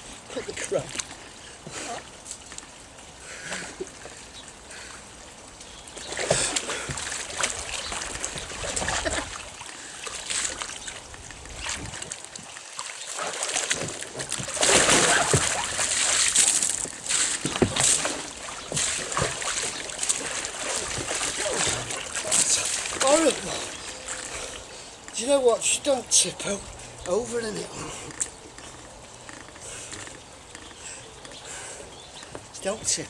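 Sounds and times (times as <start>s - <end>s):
water splashing around kayak: 0.0s - 25.0s.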